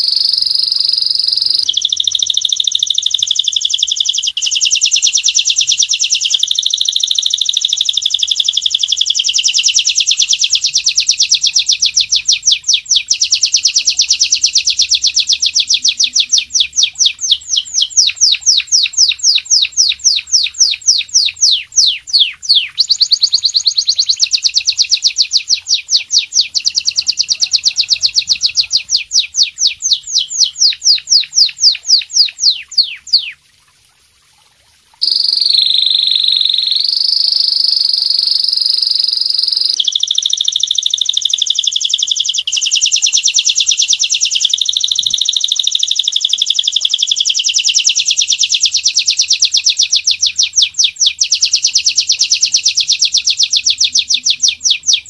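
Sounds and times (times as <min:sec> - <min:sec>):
high bird trill: 0:00.0 - 0:33.4, 0:35.0 - 0:55.0
songbird chirps: 0:00.0 - 0:33.8, 0:35.0 - 0:55.0.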